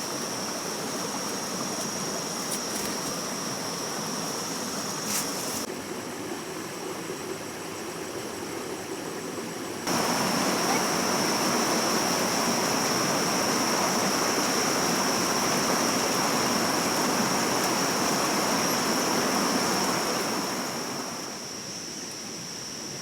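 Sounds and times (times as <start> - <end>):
stream rushing: 0.0 - 5.7, 9.9 - 21.4.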